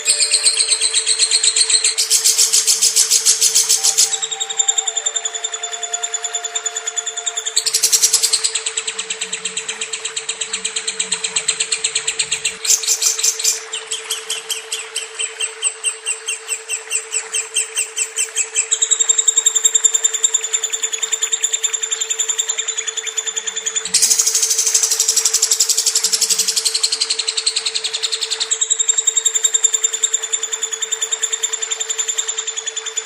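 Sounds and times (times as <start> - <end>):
steady low hum: 0.0 - 27.9
lovebird chattering trill: 0.0 - 30.0.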